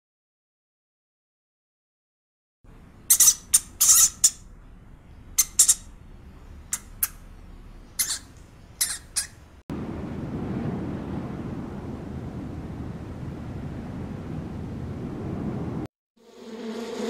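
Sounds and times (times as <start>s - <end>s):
rat squeaking: 3.1s - 4.5s, 5.3s - 6.0s, 6.6s - 9.5s.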